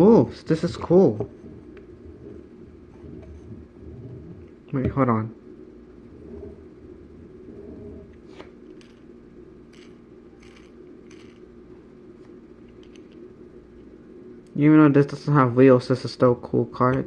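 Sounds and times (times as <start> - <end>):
steady low hum: 0.0 - 17.0
toy car clicks and rattles: 8.8 - 9.0, 9.7 - 11.4.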